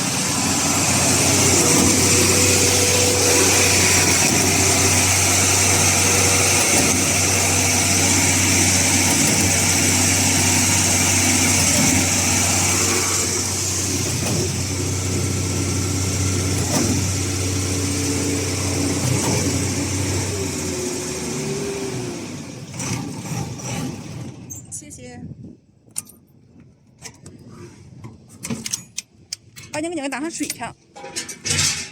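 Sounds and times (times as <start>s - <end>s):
pump engine humming: 0.0s - 24.4s.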